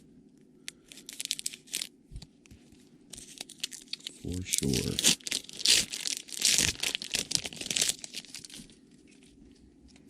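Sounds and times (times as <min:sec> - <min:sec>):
plastic wrapper crinkling: 0:00.9 - 0:01.9, 0:03.1 - 0:09.3.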